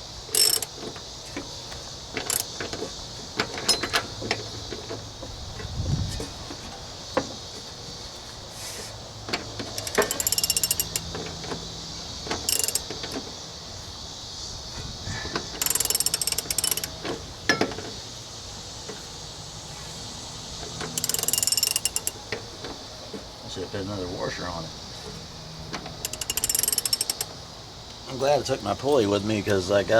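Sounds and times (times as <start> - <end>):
ratchet wrench clicking: 0.3 - 0.9, 2.2 - 2.6, 9.7 - 11.4, 12.3 - 13.1, 15.6 - 17.1, 20.9 - 22.2, 25.9 - 27.4.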